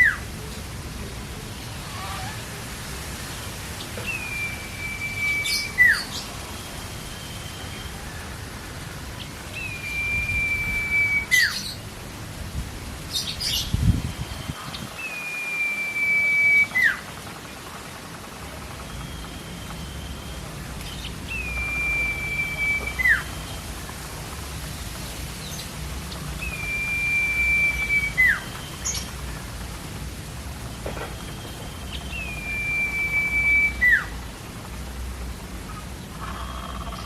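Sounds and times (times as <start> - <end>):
steady hiss: 0.0 - 37.0
bird whistling call: 4.0 - 6.3, 9.6 - 11.8, 13.2 - 17.0, 18.8 - 23.6, 26.4 - 29.1, 31.1 - 34.2
fainter high whistles: 4.1 - 6.2, 9.6 - 11.7, 15.2 - 17.0, 21.3 - 23.4, 26.4 - 29.0, 31.5 - 34.1.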